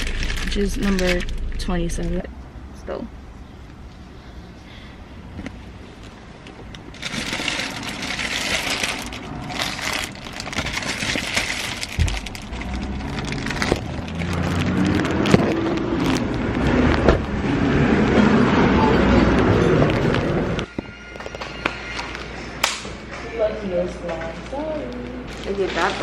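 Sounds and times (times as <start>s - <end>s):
plastic packaging crinkling: 0.0s - 1.5s, 6.7s - 16.6s, 25.2s - 26.0s.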